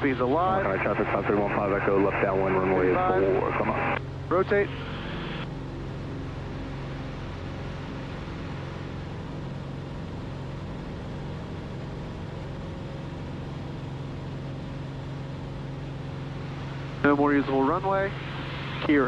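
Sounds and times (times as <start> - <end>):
propeller plane engine drone: 0.0 - 19.0.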